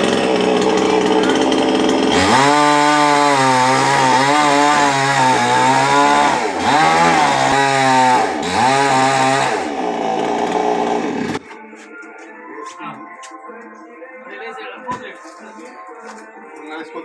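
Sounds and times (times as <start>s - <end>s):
chainsaw engine at high revs: 0.0s - 11.4s.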